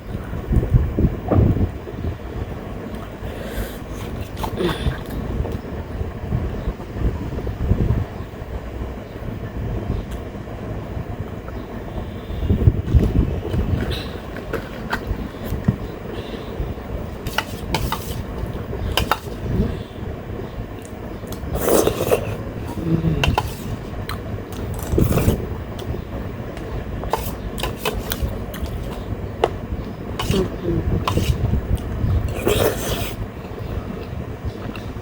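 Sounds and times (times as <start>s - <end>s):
fan hum: 0.0s - 35.0s
chewing: 27.1s - 29.0s.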